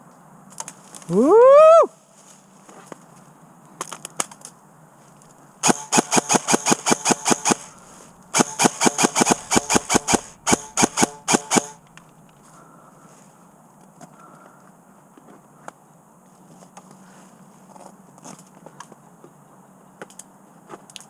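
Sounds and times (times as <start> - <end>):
airsoft rifle firing: 5.6 - 11.9.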